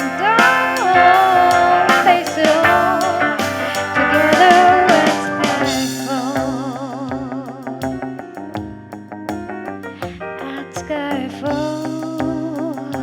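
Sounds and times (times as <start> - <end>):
sliding lead instrument line: 0.0 - 7.4
drums: 0.0 - 13.0.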